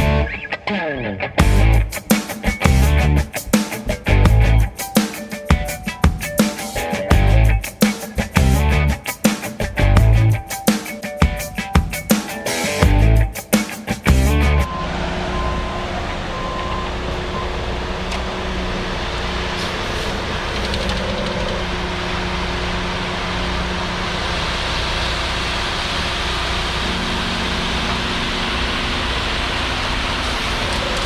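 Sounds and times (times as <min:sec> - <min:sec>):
heavy equipment engine running: 0:01.4 - 0:04.7, 0:14.1 - 0:31.0.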